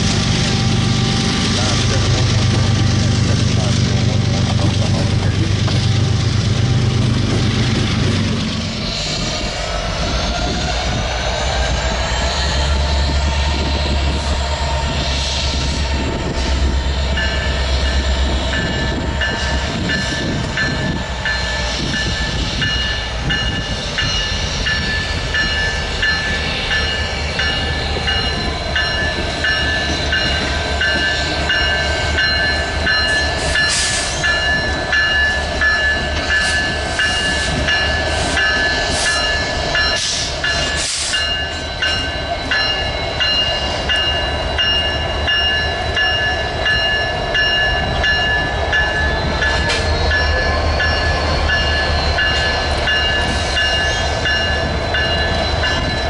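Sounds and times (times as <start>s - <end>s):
train wheels on track: 0.0s - 56.0s
steady high ringing: 16.7s - 56.0s.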